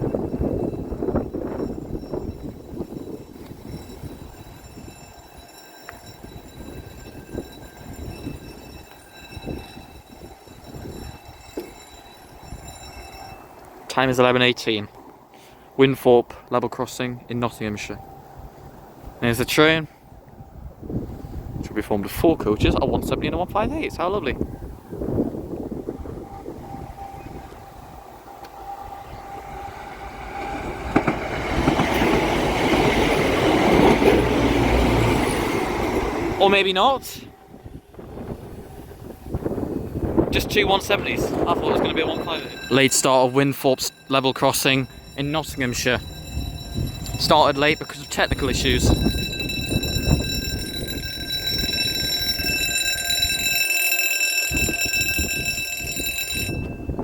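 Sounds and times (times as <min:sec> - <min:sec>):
level crossing alarm tone: 0:00.0 - 0:13.7, 0:26.1 - 0:57.0
train engines and wheels rumbling: 0:00.0 - 0:57.0.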